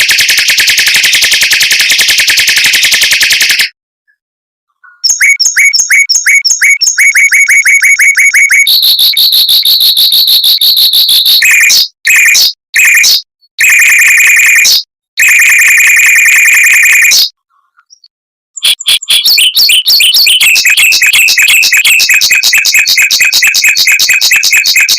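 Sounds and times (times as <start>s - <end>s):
mockingbird singing trills: 4.8s - 7.6s, 17.2s - 24.9s.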